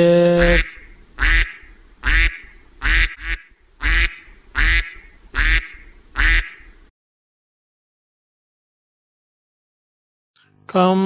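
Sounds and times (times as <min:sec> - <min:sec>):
duck quacking: 0:00.3 - 0:06.8.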